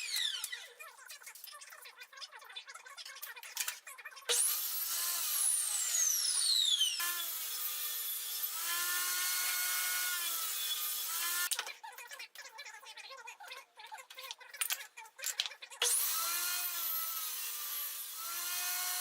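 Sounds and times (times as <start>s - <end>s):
power tool cutting wood: 0.0s - 0.7s, 4.3s - 11.5s, 15.8s - 19.0s.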